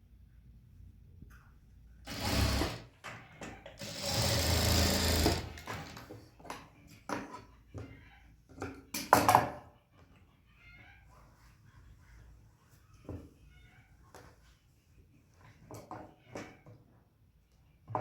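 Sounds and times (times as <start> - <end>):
sewing machine running: 2.1 - 2.9, 3.8 - 6.0.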